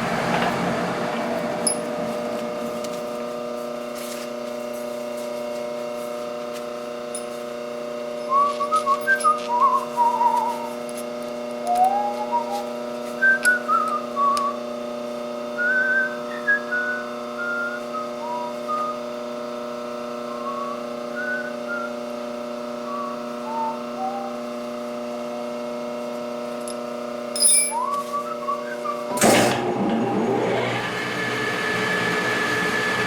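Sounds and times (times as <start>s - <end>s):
steady held drone: 0.0s - 7.2s, 19.7s - 26.0s
whistled tune: 8.2s - 10.7s, 11.7s - 14.6s, 15.6s - 19.0s, 20.3s - 22.0s, 22.9s - 24.4s, 27.7s - 29.2s.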